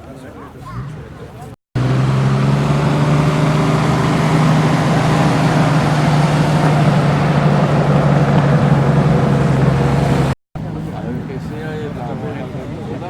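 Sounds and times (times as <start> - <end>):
car engine running steadily: 1.8 - 10.9.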